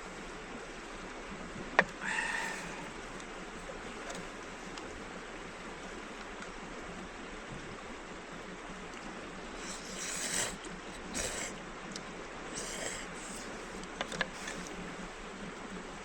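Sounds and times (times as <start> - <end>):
flowing river rushing: 9.1 - 16.0.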